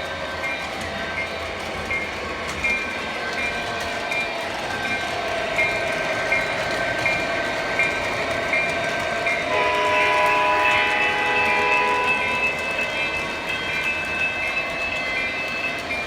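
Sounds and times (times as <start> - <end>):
model train running on track: 0.0 - 16.0
multi-note train horn: 9.5 - 13.2.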